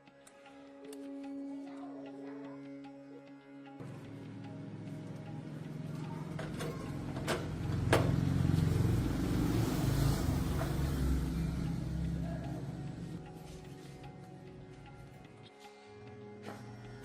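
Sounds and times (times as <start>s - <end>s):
engine running: 3.8s - 14.4s.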